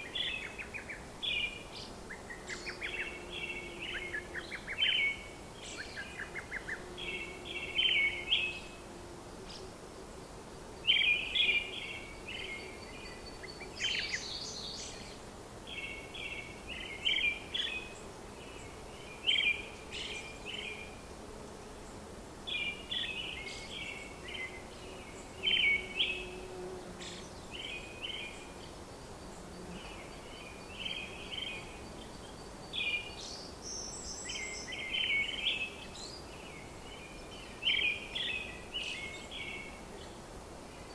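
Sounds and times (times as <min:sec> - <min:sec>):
small birds chirping: 0:00.0 - 0:08.8, 0:10.8 - 0:21.1, 0:21.8 - 0:40.2
steady background hiss: 0:00.0 - 0:40.9.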